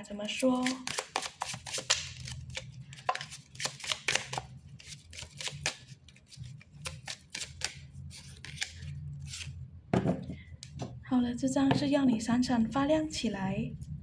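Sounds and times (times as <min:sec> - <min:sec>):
playing cards shuffling: 0:00.6 - 0:09.5.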